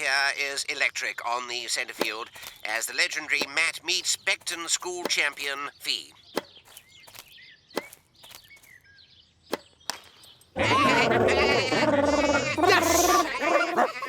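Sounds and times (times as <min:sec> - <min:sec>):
cartoon sheep bleating: 0:10.6 - 0:14.0.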